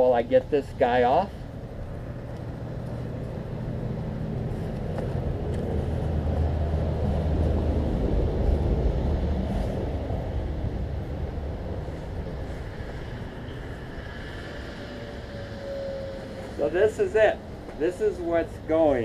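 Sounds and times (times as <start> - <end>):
vehicle engine passing by: 2.5 - 17.0.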